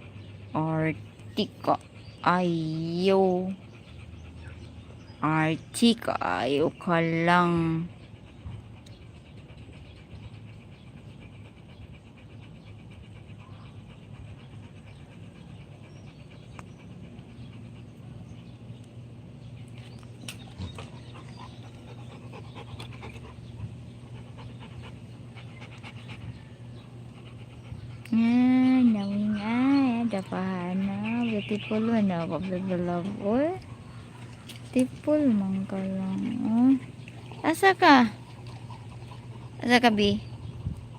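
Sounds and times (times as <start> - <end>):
dog panting: 0.0 - 40.9
steady low hum: 0.0 - 40.9.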